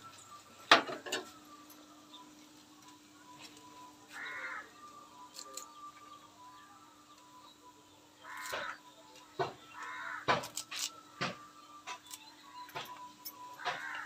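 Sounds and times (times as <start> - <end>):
bird calling: 4.1 - 6.2, 8.2 - 8.8, 9.6 - 10.3, 13.6 - 14.0.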